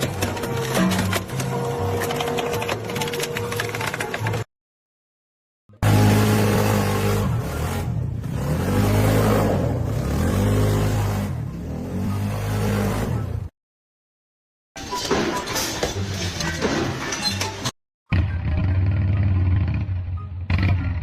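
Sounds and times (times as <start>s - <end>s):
motor revving up and down: 5.8s - 13.3s.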